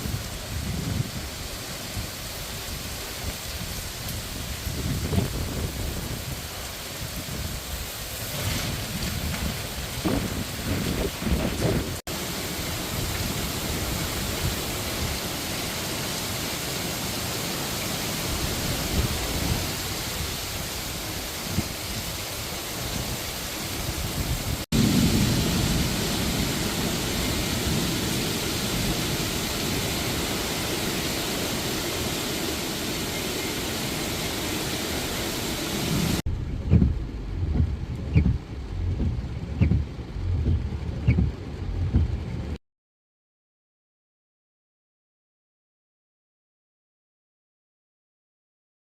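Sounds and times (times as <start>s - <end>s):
heavy rain: 0.0s - 42.6s
wind: 0.0s - 42.6s
uneven low rumbling: 36.0s - 42.6s.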